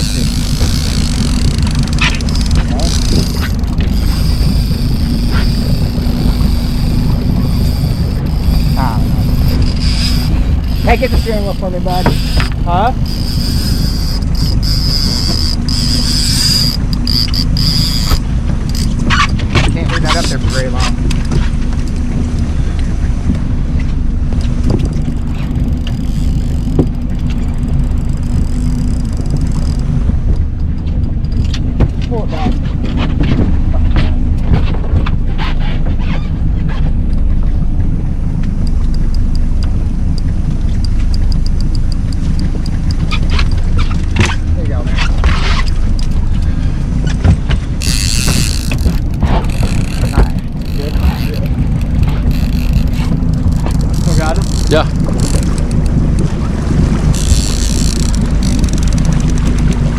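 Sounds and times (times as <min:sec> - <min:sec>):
boat motor running: 0:00.0 - 0:59.9
wind on microphone: 0:00.0 - 0:59.9.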